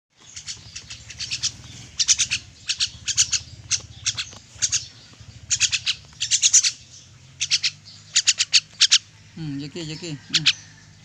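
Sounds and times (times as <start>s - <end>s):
myna chirping calls: 0.2s - 11.0s.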